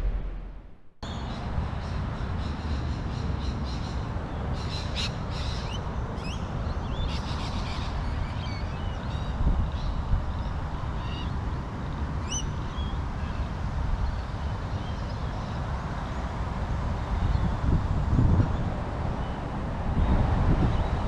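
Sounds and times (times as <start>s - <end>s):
loud intro sound: 0.0s - 0.9s
steady low rumble: 0.0s - 2.4s.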